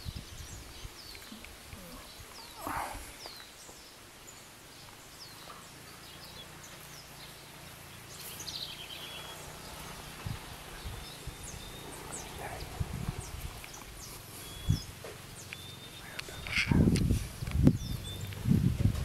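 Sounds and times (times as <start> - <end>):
background hiss: 0.0 - 19.0
birds chirping: 0.0 - 19.0
low bumps: 5.4 - 19.0.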